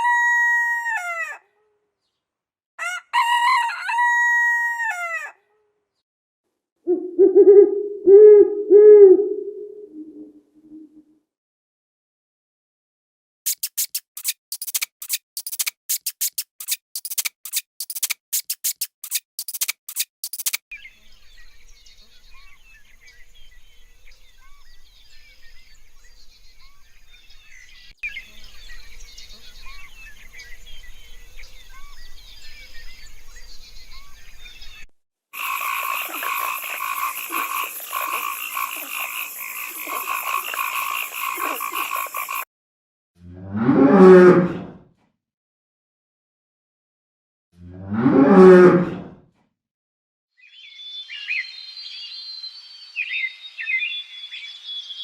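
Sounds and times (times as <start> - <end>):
frog sharp clicks: 13.5 - 20.6, 35.4 - 42.4
loud pulsing frog chorus: 35.4 - 42.4
faint frog chirping chorus: 35.4 - 42.5.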